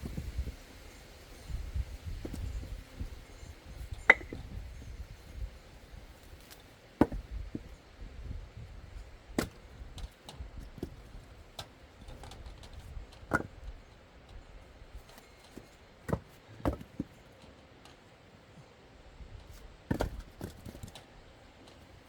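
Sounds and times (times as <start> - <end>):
axe splitting firewood: 3.9 - 4.6, 6.2 - 7.8, 9.3 - 9.9, 10.6 - 13.8, 15.1 - 17.1, 19.9 - 20.9.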